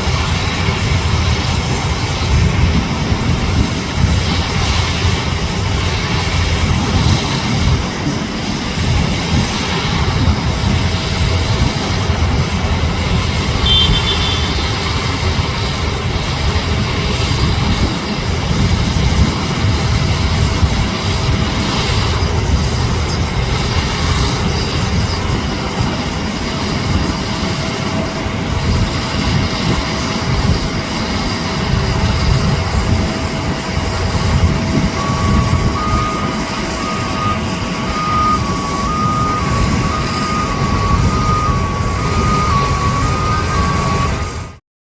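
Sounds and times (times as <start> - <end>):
jet airliner engines roaring: 0.0 - 44.6.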